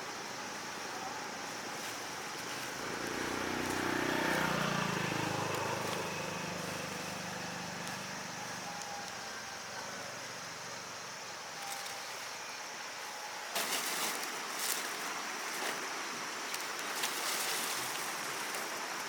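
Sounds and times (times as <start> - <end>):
vehicle engine passing by: 2.0 - 10.0.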